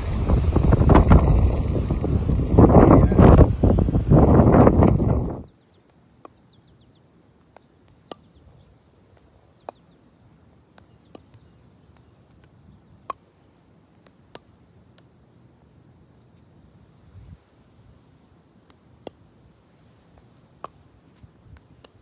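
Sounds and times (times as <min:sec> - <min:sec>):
wind buffeting microphone: 0:00.0 - 0:05.5.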